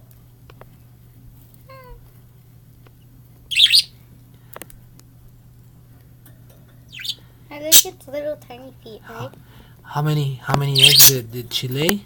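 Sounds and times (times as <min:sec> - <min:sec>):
low steady hum: 0:00.0 - 0:12.0
budgerigar chirping: 0:03.5 - 0:03.9, 0:06.9 - 0:07.9, 0:10.7 - 0:11.2.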